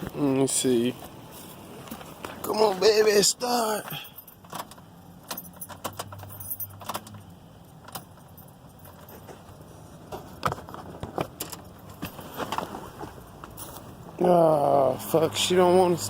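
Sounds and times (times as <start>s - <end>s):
car keys jangling in ignition: 3.7s - 9.7s, 11.3s - 12.2s.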